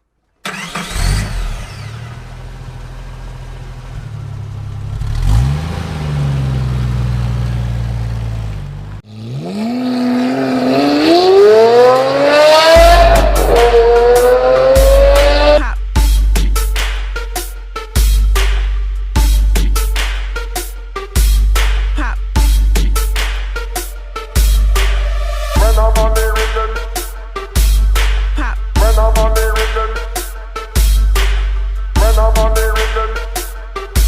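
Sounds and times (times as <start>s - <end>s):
car engine revving: 0.4s - 15.6s
electronic music: 10.7s - 34.0s.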